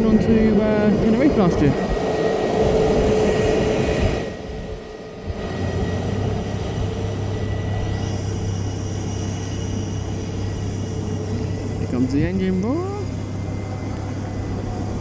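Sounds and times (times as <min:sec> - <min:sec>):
jet engines whining: 0:00.0 - 0:15.0.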